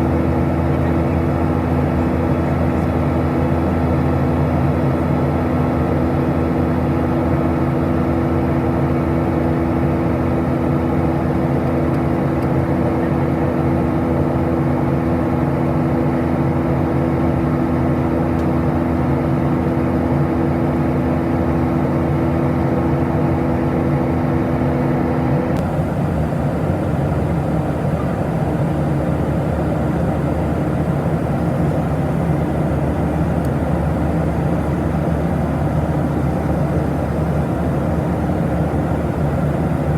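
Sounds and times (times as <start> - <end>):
airplane cabin engine noise: 0.0 - 39.9
steady hums: 25.6 - 39.9.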